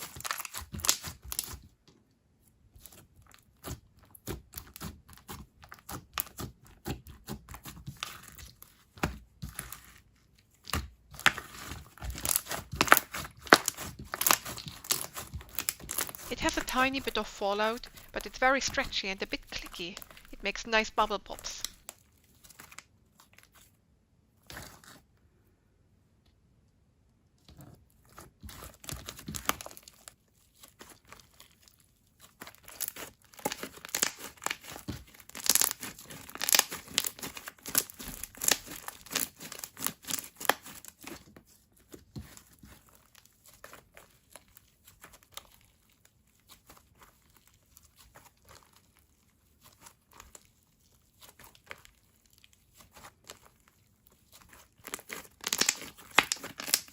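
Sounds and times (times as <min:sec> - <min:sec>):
slime squished by hand: 0:02.8 - 0:16.3, 0:41.8 - 0:56.9
wet clicks and bubble pops: 0:55.4 - 0:56.9.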